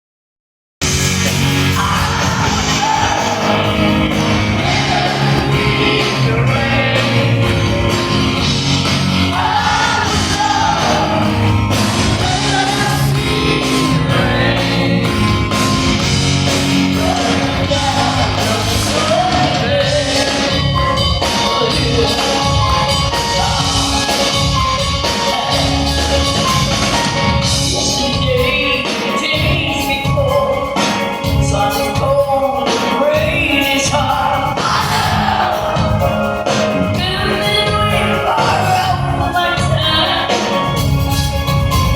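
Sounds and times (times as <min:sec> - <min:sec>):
live rock band playing: 0:00.8 - 0:41.9
woman singing: 0:27.9 - 0:40.7.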